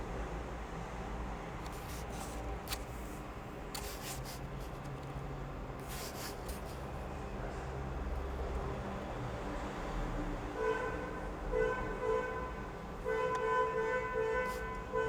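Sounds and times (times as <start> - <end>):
scraping and rubbing strokes: 5.8 - 6.8.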